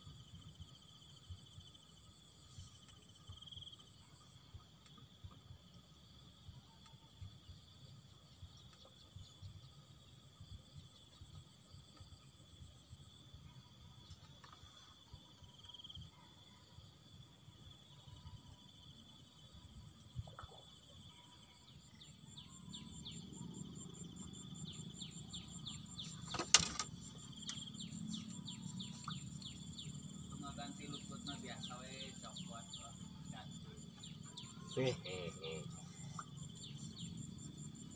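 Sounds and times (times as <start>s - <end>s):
lower insect trill: 0.0s - 37.9s
insects trilling high: 21.4s - 37.9s.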